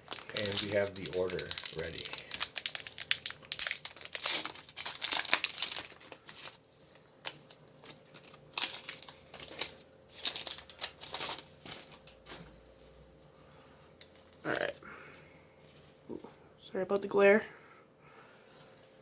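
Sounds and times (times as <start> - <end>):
foil pack crinkling and tearing: 0.0 - 12.8.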